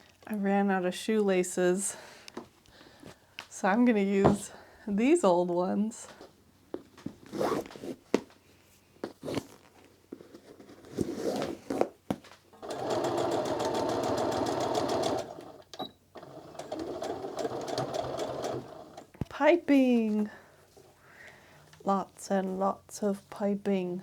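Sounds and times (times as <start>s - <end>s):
sewing machine stitching: 12.6s - 19.2s.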